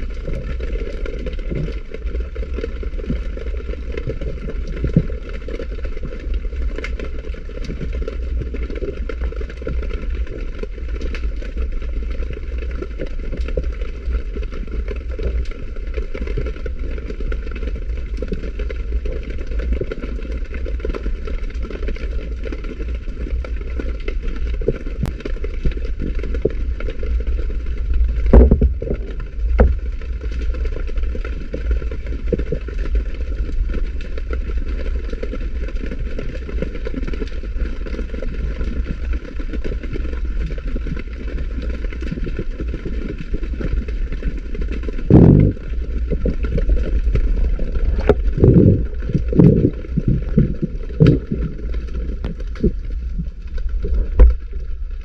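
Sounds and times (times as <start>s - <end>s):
crackles and clicks: 0.0s - 55.0s
underwater low rumble: 0.0s - 55.0s
loud knocks: 28.3s - 29.0s.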